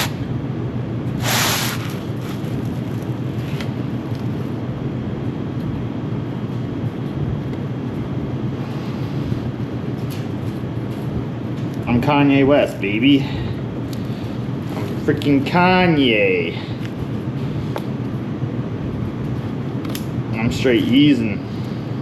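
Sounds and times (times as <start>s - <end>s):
steady low hum: 0.0s - 22.0s
denim fabric rasp: 1.2s - 3.6s.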